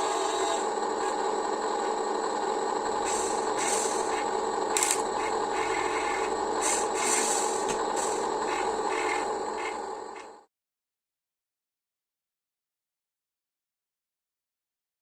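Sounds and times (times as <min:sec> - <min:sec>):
small electric motors whining: 0:00.0 - 0:10.4.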